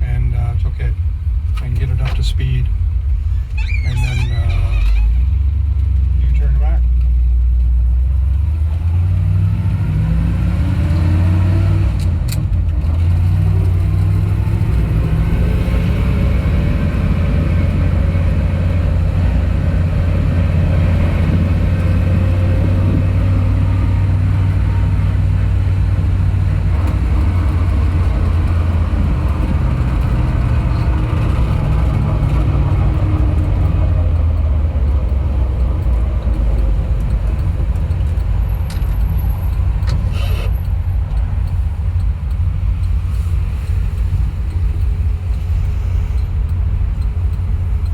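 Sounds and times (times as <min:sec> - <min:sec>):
road and tyre noise: 0:00.0 - 0:47.9
truck engine running: 0:12.1 - 0:47.9.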